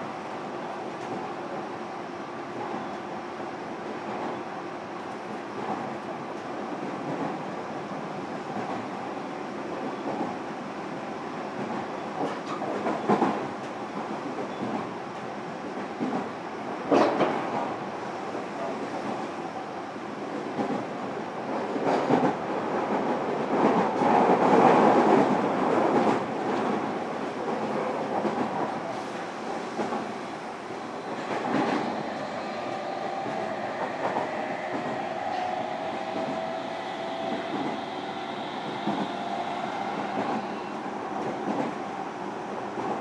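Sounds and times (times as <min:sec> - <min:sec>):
train wheel and rail rumble: 0:00.0 - 0:43.0.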